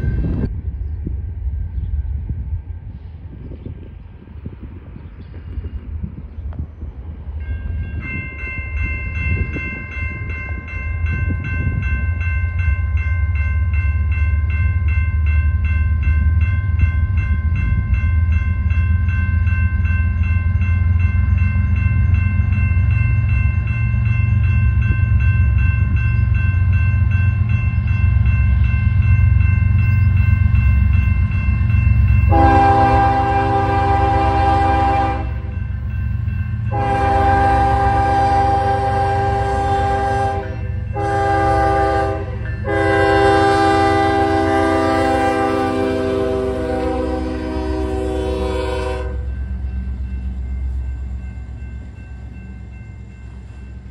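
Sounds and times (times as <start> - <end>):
crossing bell ringing: 0.0 - 0.5, 7.3 - 53.9
freight train rumble: 0.0 - 53.9
train horn blast: 32.3 - 35.6, 36.7 - 49.4.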